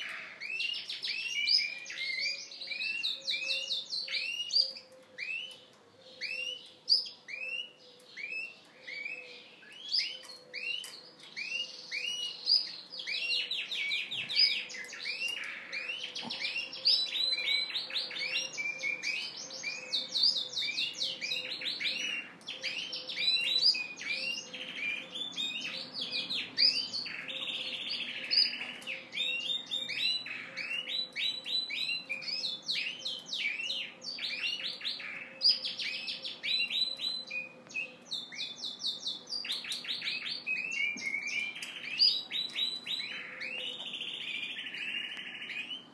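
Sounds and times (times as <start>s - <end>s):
canary singing with trills: 0.0s - 45.9s.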